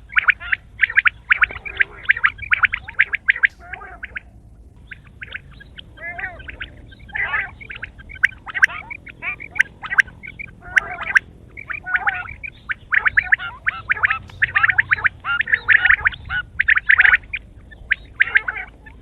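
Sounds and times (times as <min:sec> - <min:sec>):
quail chirping and chattering: 0:00.0 - 0:19.0
sharp clicks: 0:13.9 - 0:15.0.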